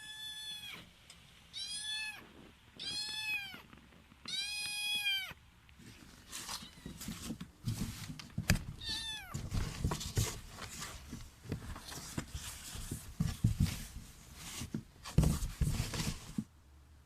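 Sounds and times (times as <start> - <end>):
kitten meowing: 0.0 - 0.8, 1.6 - 2.2, 2.8 - 3.6, 4.3 - 5.4, 8.8 - 9.4
rustling and handling knocks: 6.0 - 16.5.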